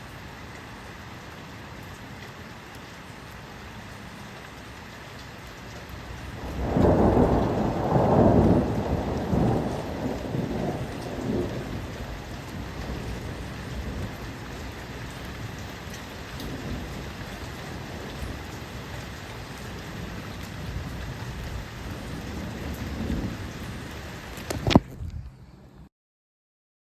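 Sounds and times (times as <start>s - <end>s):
rain falling: 0.0s - 25.9s
thunder rumbling: 6.0s - 25.3s.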